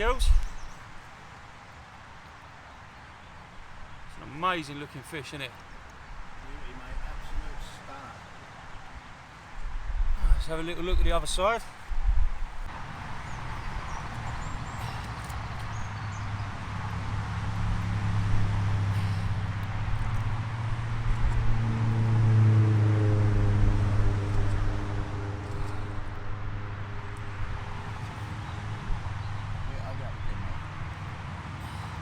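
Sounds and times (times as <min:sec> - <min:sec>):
low engine drone: 0:15.7 - 0:32.0.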